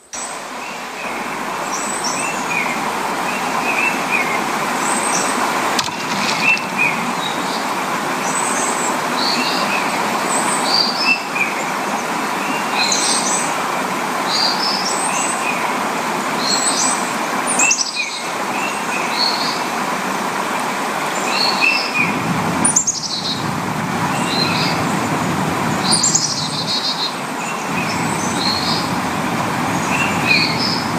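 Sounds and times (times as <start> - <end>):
loud steady rushing noise: 0.1 - 12.4, 21.9 - 30.9.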